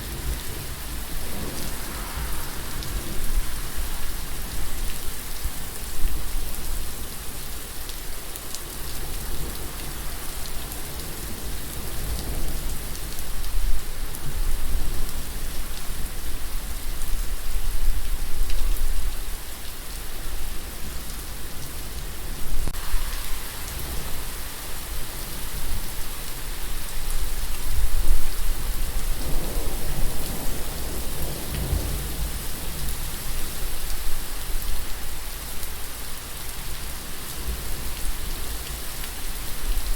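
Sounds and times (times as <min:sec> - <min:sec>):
steady rain falling: 0:00.0 - 0:39.9
low rumble: 0:00.6 - 0:04.9.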